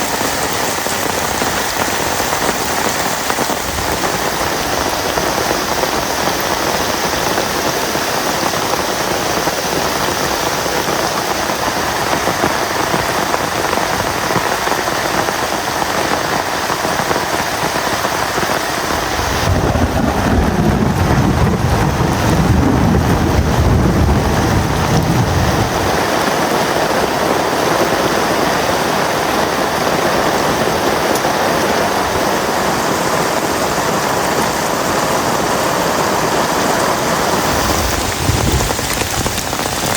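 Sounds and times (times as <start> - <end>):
heavy rain falling: 0.0 - 39.9
thunder rumbling: 18.4 - 27.8, 37.0 - 39.9.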